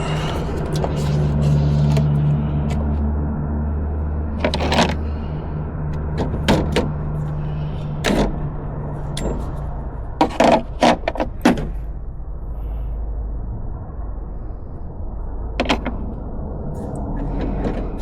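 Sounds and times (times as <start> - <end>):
low mechanical hum: 0.0 - 18.0
metallic clinks and knocks: 8.9 - 10.4.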